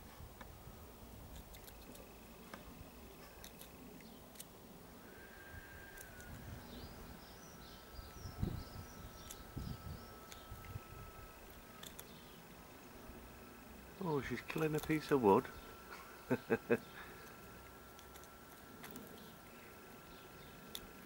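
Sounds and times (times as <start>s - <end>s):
thin steady whistle-like tone: 5.0s - 11.4s
bird twittering: 5.1s - 12.4s.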